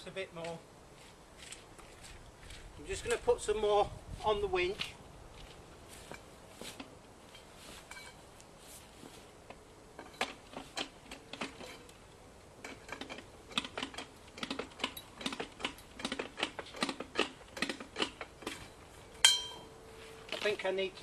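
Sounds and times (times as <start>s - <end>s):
hand winch clicking: 12.6s - 18.6s.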